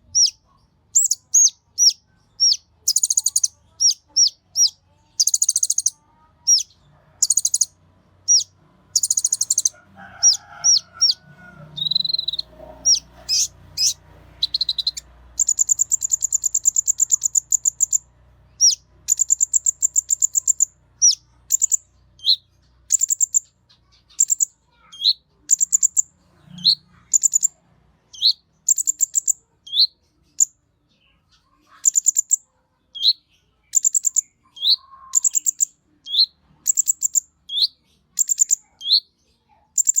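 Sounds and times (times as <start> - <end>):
bird singing high chirps and trills: 0.0 - 40.0
faint low fluttering bird call: 8.3 - 18.0.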